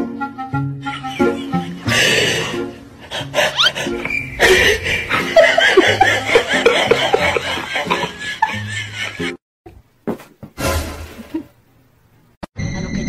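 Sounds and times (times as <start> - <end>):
people laughing: 0.8 - 9.4.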